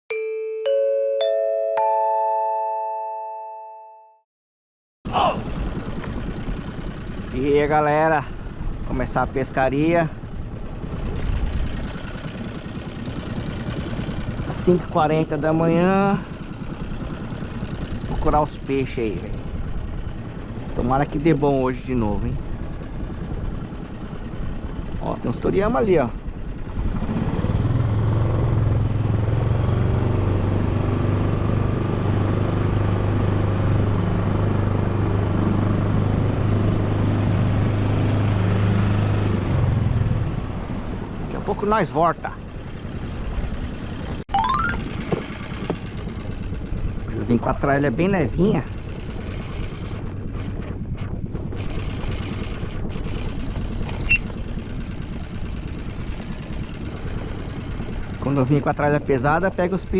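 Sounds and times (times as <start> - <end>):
boat motor droning: 5.1 - 27.0, 44.8 - 59.9.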